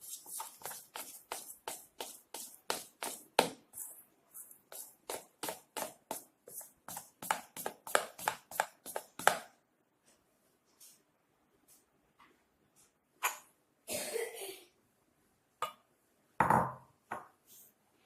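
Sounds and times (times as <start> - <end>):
dough stirred in a bowl: 0.0 - 9.6.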